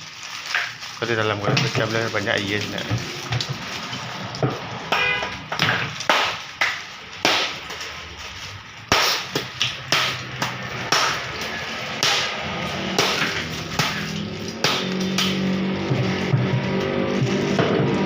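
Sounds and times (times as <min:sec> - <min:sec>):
ice being struck and cracking: 0:05.6 - 0:08.0, 0:08.8 - 0:16.2.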